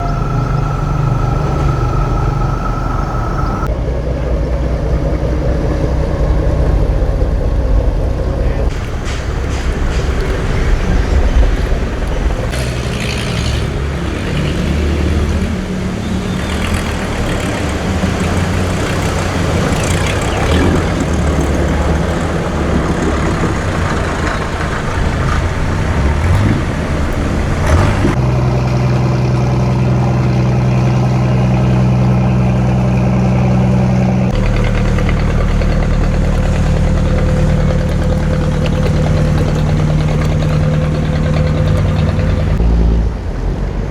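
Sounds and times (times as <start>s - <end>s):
wind noise: 0.0s - 14.4s
boat engine running: 0.0s - 43.8s
rough water: 0.0s - 43.9s.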